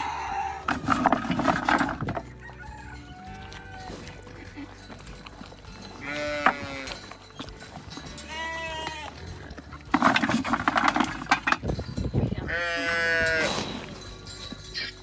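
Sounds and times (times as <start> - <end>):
sheep bleating: 0.0 - 0.7, 5.8 - 7.2, 8.1 - 9.5, 12.4 - 13.5
rustling and clattering: 0.0 - 12.3, 13.0 - 15.0.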